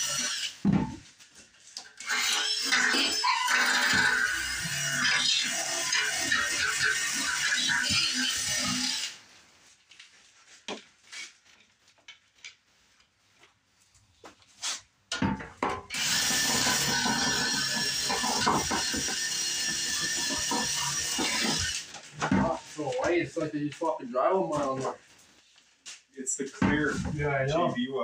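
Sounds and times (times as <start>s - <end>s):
handheld power tool running: 0.0s - 0.6s, 2.0s - 9.2s, 15.9s - 22.0s.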